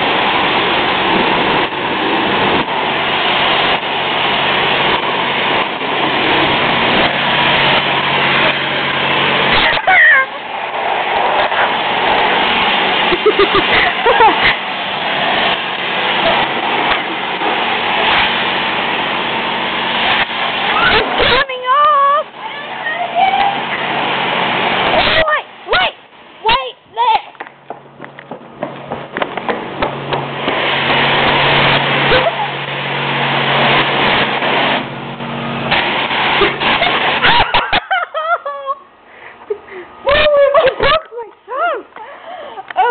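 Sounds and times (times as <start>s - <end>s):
car wash rushing noise: 0.0s - 42.9s
low machine hum: 27.6s - 37.2s.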